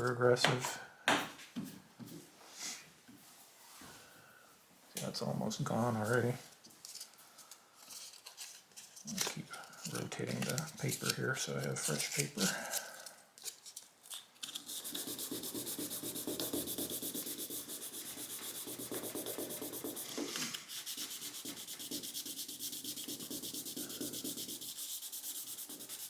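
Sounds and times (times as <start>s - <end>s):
sandpaper rubbing on paint: 14.5s - 26.0s.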